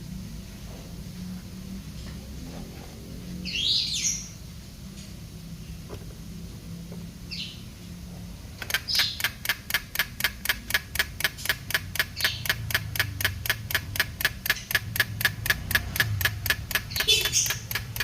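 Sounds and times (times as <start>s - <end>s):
rapid mechanical clicking: 8.6s - 18.0s.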